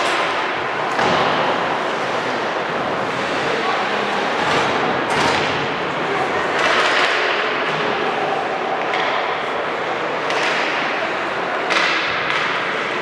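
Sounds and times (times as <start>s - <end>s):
crowd and players: 0.0s - 13.0s
skates scraping ice: 1.2s - 4.7s
hockey sticks and puck knocking: 6.5s - 8.0s, 8.8s - 9.4s, 10.2s - 11.0s, 11.6s - 13.0s.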